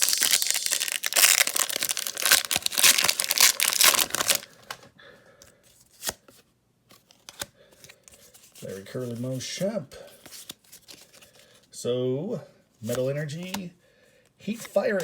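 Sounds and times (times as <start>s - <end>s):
foil wrapper tearing: 0.0s - 4.6s
wrapper and cards rustling: 0.0s - 4.9s, 5.8s - 11.6s, 14.4s - 15.0s.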